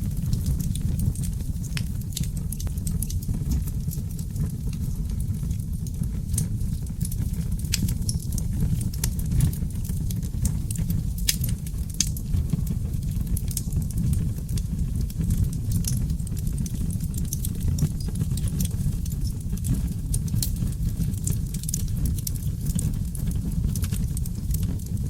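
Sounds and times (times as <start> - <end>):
logs crackling and popping: 0.0 - 25.0
low rumble of flames: 0.0 - 25.0.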